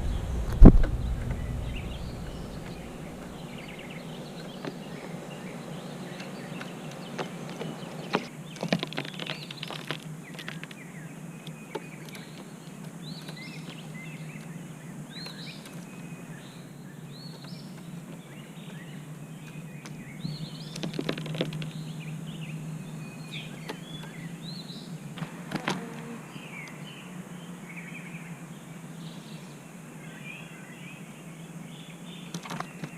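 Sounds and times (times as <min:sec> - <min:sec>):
steady low hum: 0:00.0 - 0:08.6
small bird chirping: 0:00.0 - 0:25.1.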